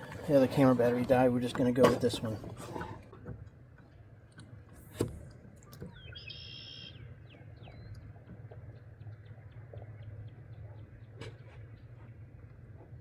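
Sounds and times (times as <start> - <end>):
bird calling: 5.7 - 8.0.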